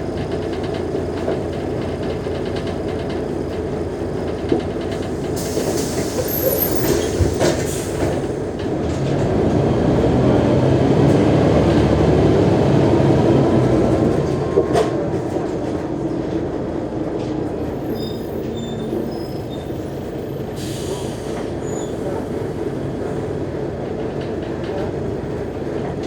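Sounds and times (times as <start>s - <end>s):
diesel bus engine running: 0.0s - 26.0s
air brake hiss: 5.4s - 8.3s, 20.4s - 22.4s.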